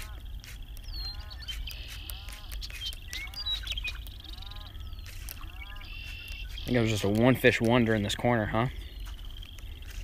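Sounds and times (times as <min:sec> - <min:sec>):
buzzy bird trill: 0:00.0 - 0:10.0
high bird chirps: 0:00.0 - 0:10.0
low steady rumble: 0:00.0 - 0:10.0
short arched bird call: 0:00.8 - 0:06.8.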